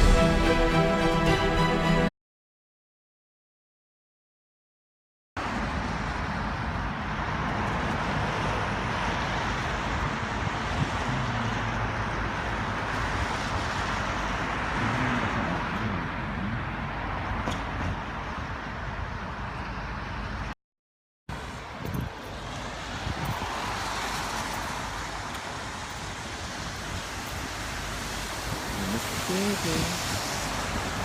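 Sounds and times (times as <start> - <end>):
hiss of passing vehicles: 21.4 - 31.0.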